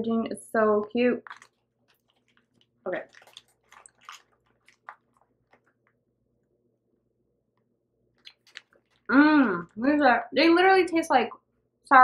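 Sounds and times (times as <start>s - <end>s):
faint chewing clicks: 1.2s - 6.0s, 8.2s - 9.8s.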